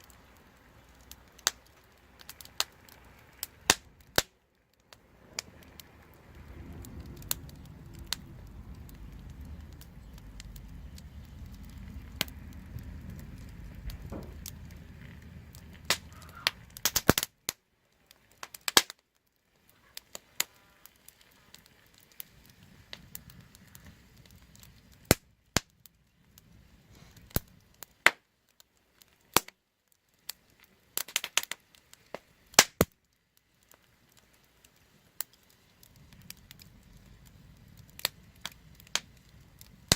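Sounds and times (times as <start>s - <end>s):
wood fire crackling: 0.0s - 39.9s
low rumble: 4.9s - 17.1s.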